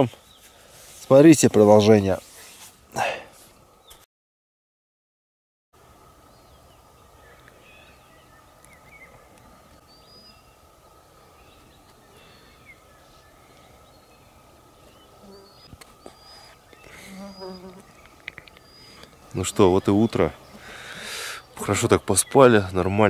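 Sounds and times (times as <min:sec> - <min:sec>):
outdoor background hiss and hum: 0:05.8 - 0:23.0
birds chirping and whistling: 0:06.3 - 0:23.0.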